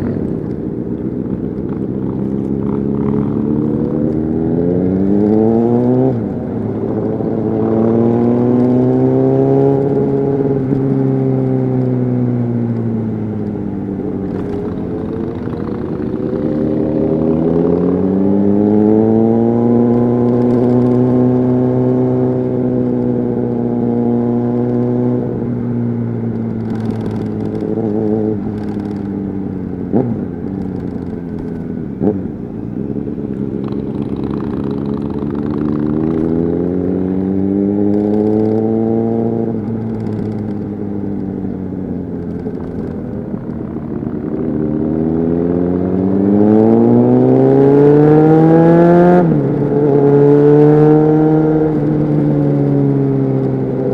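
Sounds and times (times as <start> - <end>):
motorcycle engine revving: 0.0 - 53.9
sharp clicks: 37.8 - 38.8, 39.6 - 43.7.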